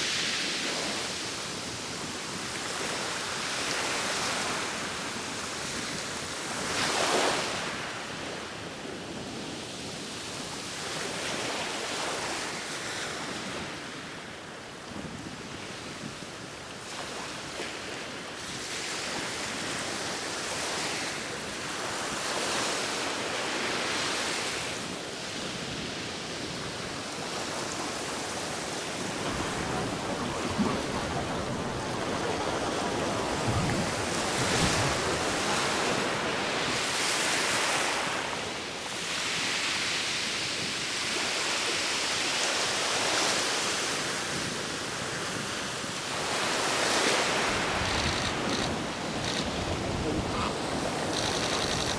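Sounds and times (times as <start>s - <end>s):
ocean surf washing ashore: 17.2s - 51.9s.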